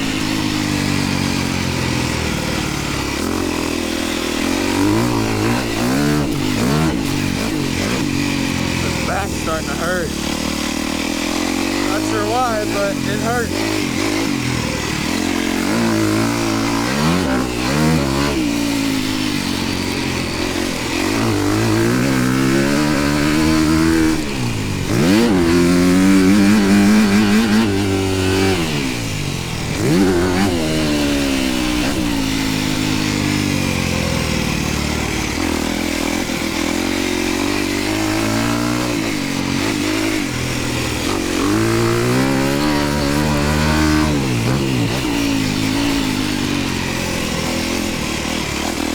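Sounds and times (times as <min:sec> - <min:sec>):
dirt bike engine revving: 0:00.0 - 0:48.9.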